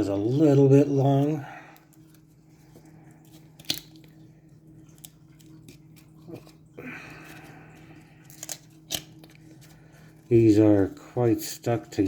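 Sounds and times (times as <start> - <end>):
steady low hum: 0.0 - 12.0
foil wrapper crinkling: 0.2 - 12.0
card pack clicking: 8.3 - 9.5.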